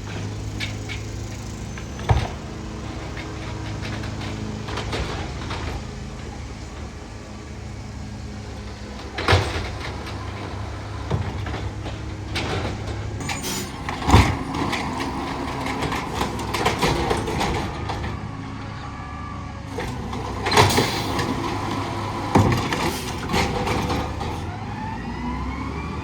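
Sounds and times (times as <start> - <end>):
garbage truck engine running: 0.0 - 26.0
light clattering: 0.1 - 18.2.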